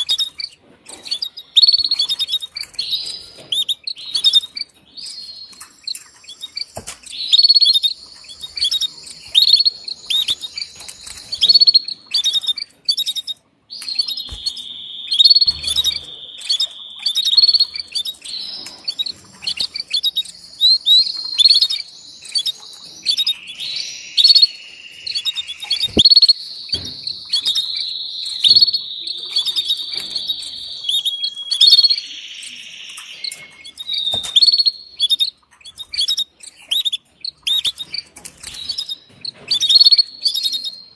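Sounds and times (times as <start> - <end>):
canaries chirping: 0.0 - 40.9
canary rolling trills: 0.0 - 40.9.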